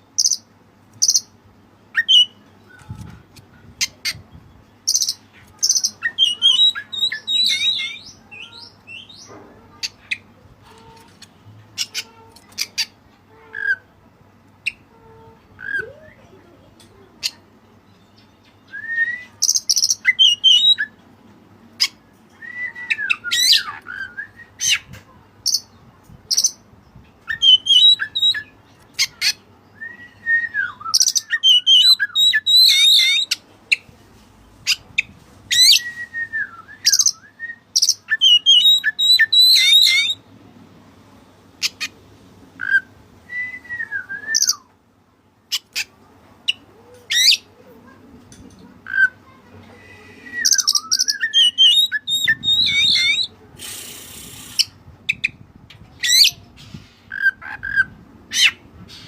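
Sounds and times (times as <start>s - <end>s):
bird singing whistled phrases: 4.9s - 9.3s, 18.7s - 20.9s, 22.4s - 24.8s, 27.3s - 28.5s, 29.8s - 33.4s, 35.5s - 40.2s, 42.7s - 44.7s, 49.8s - 53.3s.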